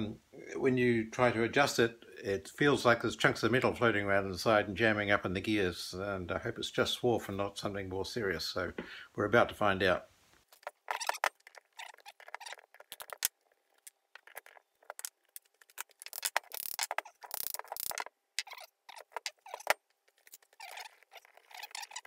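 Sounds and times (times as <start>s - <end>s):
metal clicks and scrapes: 10.6s - 22.0s.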